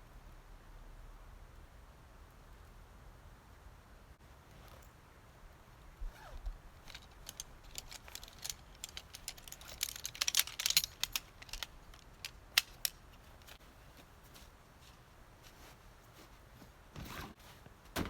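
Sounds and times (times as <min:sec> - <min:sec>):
light sharp clicks and crackles: 0:04.4 - 0:16.4.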